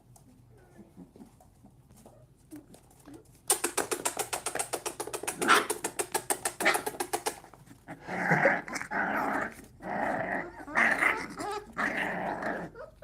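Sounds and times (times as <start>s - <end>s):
fast even clicks: 3.5s - 7.4s
puppies growling: 3.6s - 13.0s.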